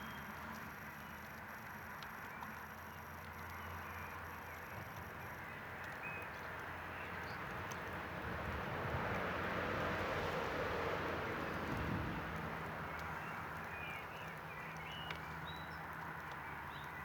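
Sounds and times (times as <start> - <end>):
campfire hissing and crackling: 6.6 - 17.0.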